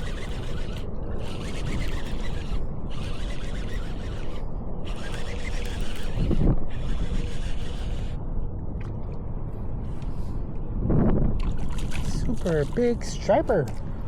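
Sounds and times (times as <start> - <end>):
fishing reel being cranked: 0.0 - 8.2
wind on microphone: 0.0 - 14.0.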